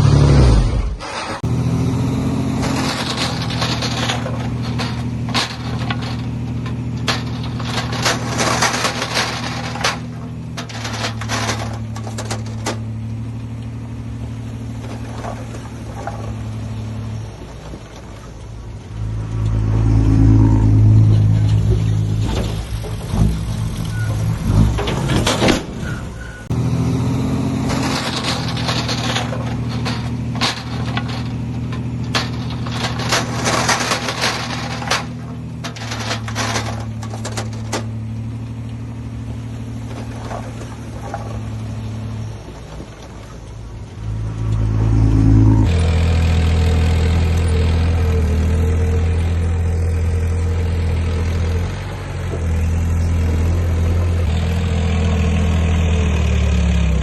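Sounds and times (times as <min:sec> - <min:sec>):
heavy diesel engines running: 0:00.0 - 0:57.0
clanks and knocks: 0:02.4 - 0:26.6, 0:27.2 - 0:56.2.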